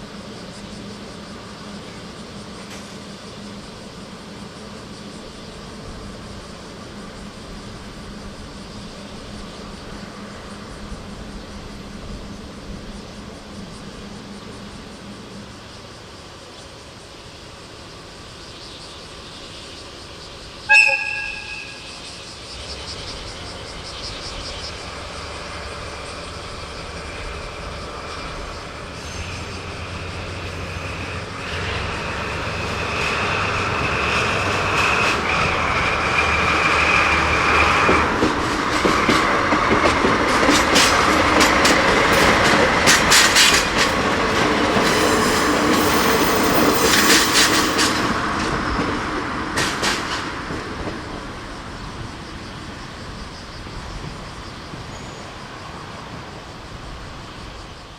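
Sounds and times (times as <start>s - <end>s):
locomotive engine drone: 20.4s - 49.8s
wagon wheels clattering over rail joints: 37.9s - 48.6s
wheel squeal: 40.6s - 48.2s.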